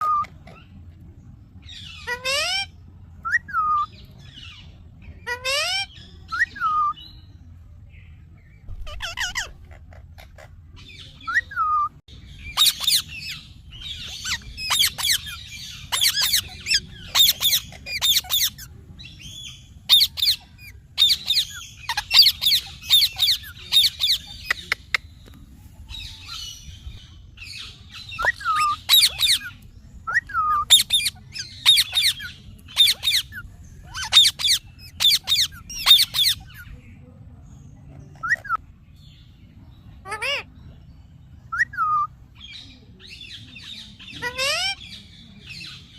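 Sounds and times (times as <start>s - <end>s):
parrot squawking: 12.5s - 13.4s, 14.0s - 18.7s, 19.9s - 24.9s, 28.2s - 36.6s.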